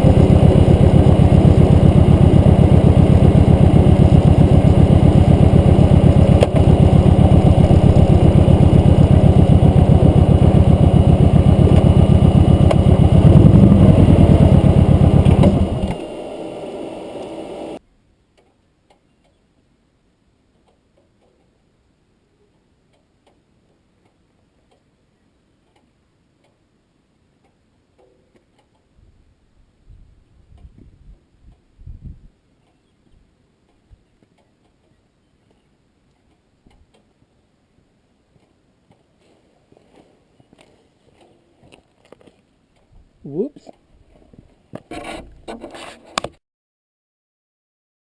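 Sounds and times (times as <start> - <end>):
motorcycle engine running: 0.0 - 17.8
low steady hum: 0.0 - 20.6
faint ticks: 22.9 - 24.9.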